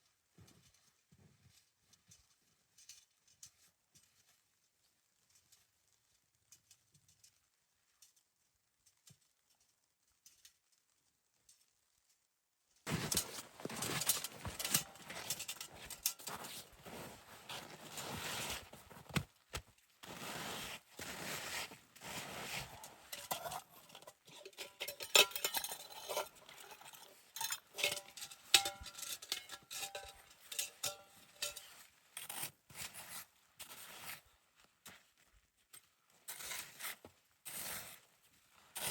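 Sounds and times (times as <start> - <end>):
hard objects clicking and clinking: 12.9 - 16.7, 22.8 - 31.7
rustling: 12.9 - 38.9.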